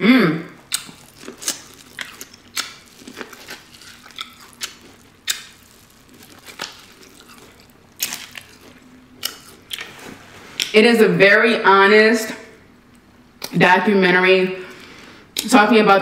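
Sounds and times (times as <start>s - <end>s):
biting and chewing corn: 0.6s - 10.7s
wet mouth clicks and smacks: 0.7s - 2.9s, 3.8s - 5.8s.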